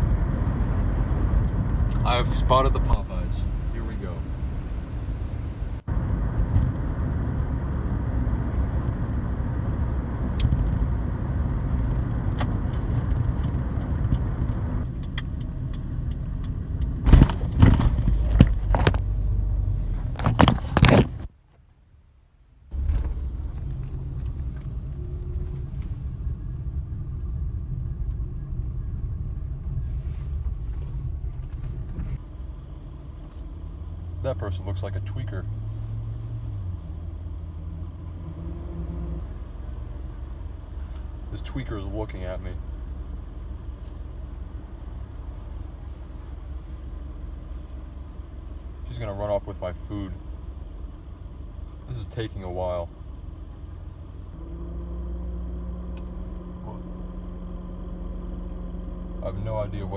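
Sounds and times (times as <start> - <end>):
car cabin rumble: 1.2 - 7.0, 11.7 - 21.3, 22.7 - 59.9
steady low hum: 2.1 - 5.9.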